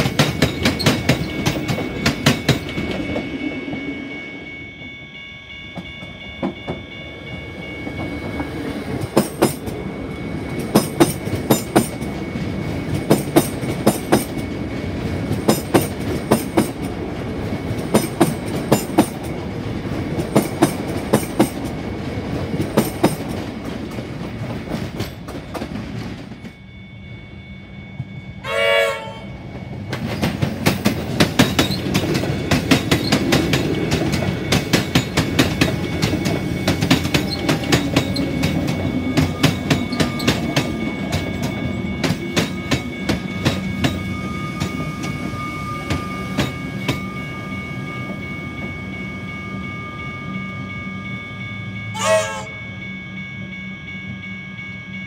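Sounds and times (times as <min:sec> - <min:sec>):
train wheels clattering over rail joints: 0:00.0 - 0:03.2, 0:29.8 - 0:45.3
train horn blast: 0:28.4 - 0:29.4, 0:51.9 - 0:52.6.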